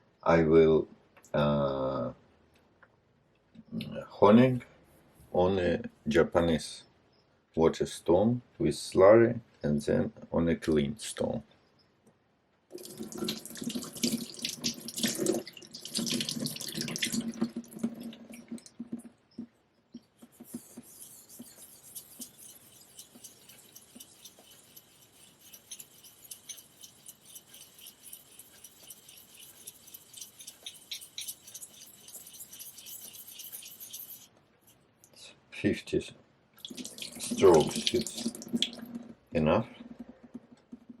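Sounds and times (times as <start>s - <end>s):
water running: 12.7s - 19.1s, 20.2s - 34.3s, 36.6s - 39.1s
razor scraping on whetstone: 20.2s - 34.3s.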